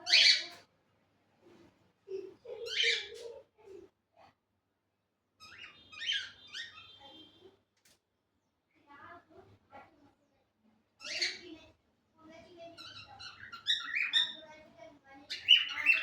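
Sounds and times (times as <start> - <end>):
cockatiels chirping: 12.8 - 14.4, 15.3 - 16.0.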